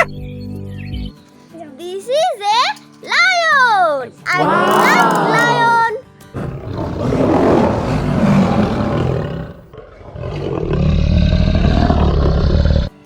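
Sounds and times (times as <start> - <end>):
lion roaring: 4.3 - 13.0.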